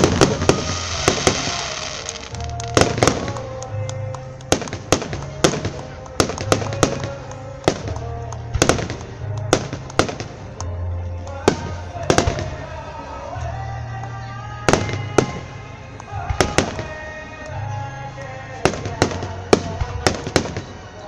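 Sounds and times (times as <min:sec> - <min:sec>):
fireworks shells bursting: 0:00.0 - 0:10.7.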